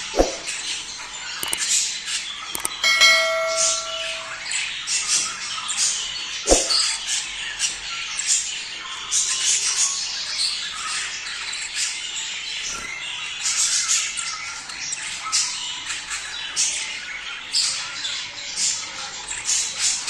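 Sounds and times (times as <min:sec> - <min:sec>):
sharp knock: 0:00.2 - 0:00.5.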